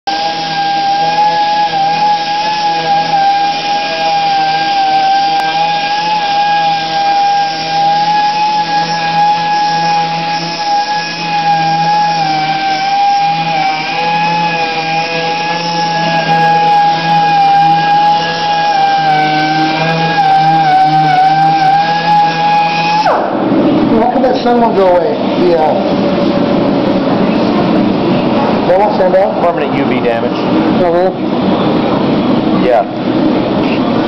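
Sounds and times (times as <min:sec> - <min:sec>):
sandpaper hissing on wood: 0:00.1 - 0:23.1
electric sander whining: 0:00.1 - 0:23.3.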